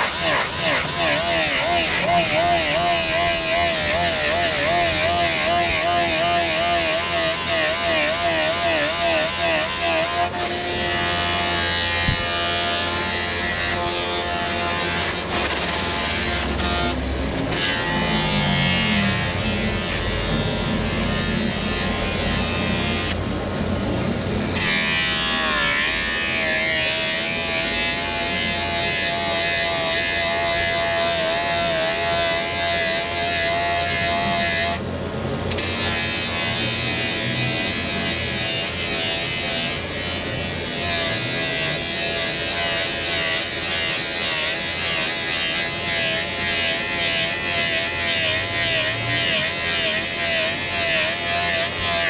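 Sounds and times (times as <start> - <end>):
power tool motor whirring: 0.0 - 23.2.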